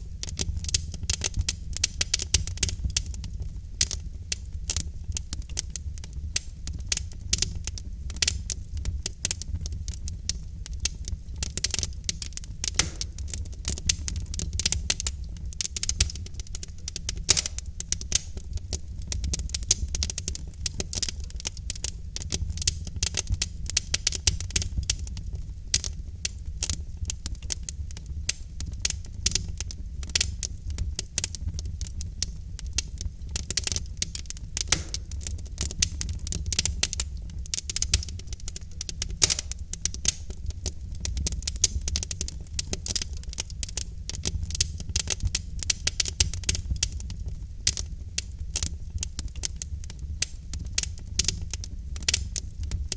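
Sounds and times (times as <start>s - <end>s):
logs crackling and popping: 0.0s - 52.9s
low rumble of flames: 0.0s - 52.9s.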